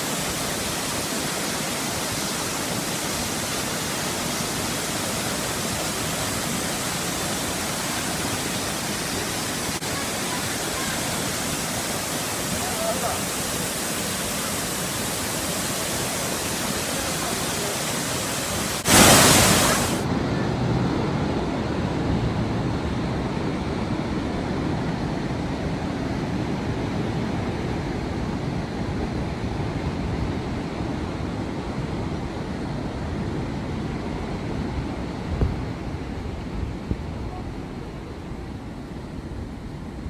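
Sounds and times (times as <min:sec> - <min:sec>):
rushing water: 0:00.0 - 0:40.0
loud burst of noise: 0:14.6 - 0:20.1.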